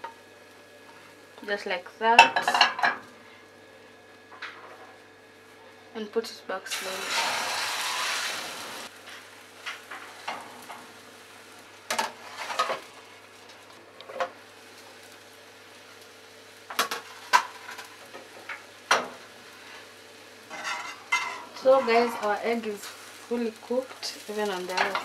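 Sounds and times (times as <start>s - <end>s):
omelette sizzling in frying pan: 6.5s - 25.0s.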